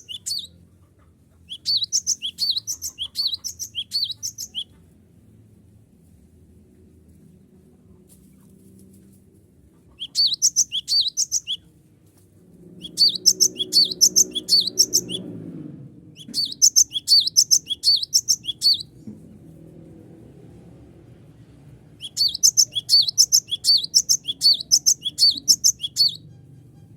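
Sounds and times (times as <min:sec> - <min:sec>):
bird singing high whistled notes: 0:00.0 - 0:00.5, 0:01.5 - 0:04.7, 0:10.0 - 0:11.6, 0:12.8 - 0:15.3, 0:16.2 - 0:18.9, 0:22.0 - 0:26.4
faint low rumble: 0:00.0 - 0:26.9.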